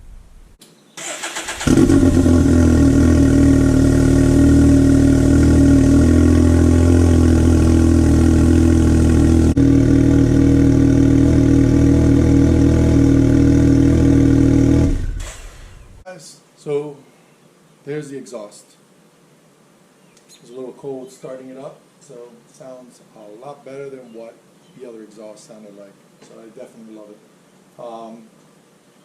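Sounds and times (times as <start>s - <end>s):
engine cranking: 1.0s - 2.4s
engine idling: 1.3s - 11.4s, 14.8s - 16.0s.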